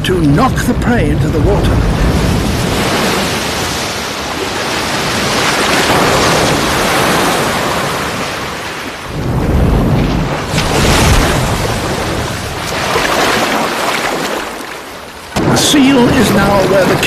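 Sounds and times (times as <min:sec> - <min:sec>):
deep rumbling water surge: 0:00.0 - 0:17.0
wave washing over ice: 0:00.3 - 0:17.0.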